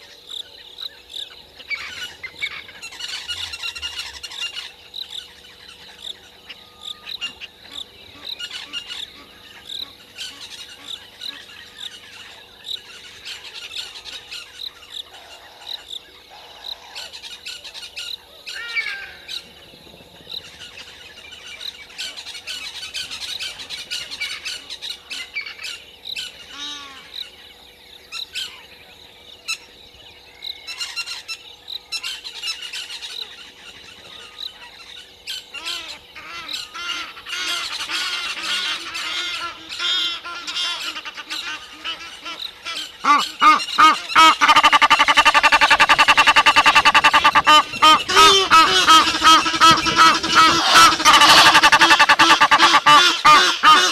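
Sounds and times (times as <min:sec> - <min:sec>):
wild birds squawking: 0:00.0 - 0:19.5, 0:30.6 - 0:53.9.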